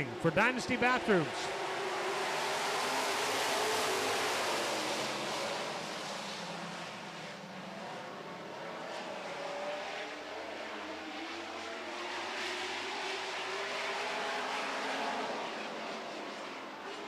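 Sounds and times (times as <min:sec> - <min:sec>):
racing truck engines: 0:00.0 - 0:17.0.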